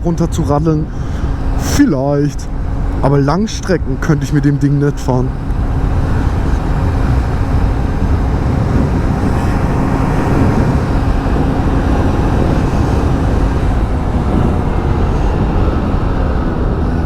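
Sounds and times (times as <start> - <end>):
wind rumble on microphone: 0.0 - 17.0
scooter engine running: 5.3 - 17.0.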